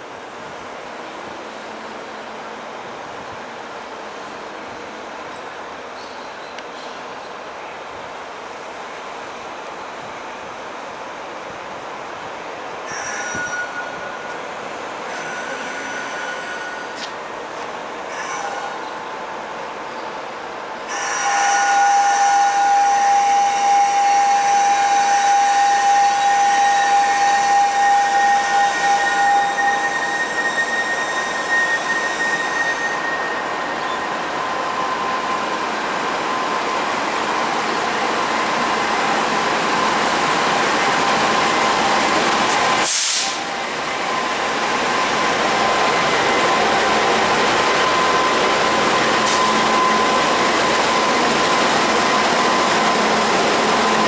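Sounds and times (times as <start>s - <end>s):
train wheels squealing: 12.9s - 17.2s, 18.1s - 20.2s, 20.8s - 54.0s
train rolling rumble: 21.7s - 54.0s
short sharp hiss: 42.5s - 43.5s.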